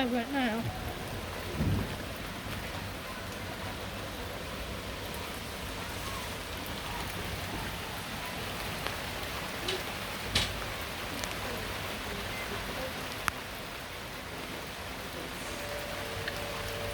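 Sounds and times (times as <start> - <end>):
heavy rain falling: 0.0 - 16.9
low thump: 1.5 - 2.0.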